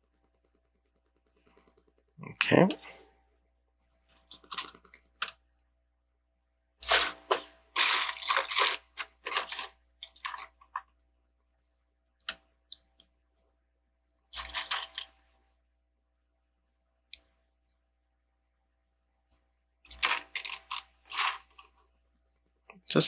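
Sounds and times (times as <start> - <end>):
plastic bricks clattering: 6.8 - 10.8, 14.4 - 15.1, 19.9 - 21.7.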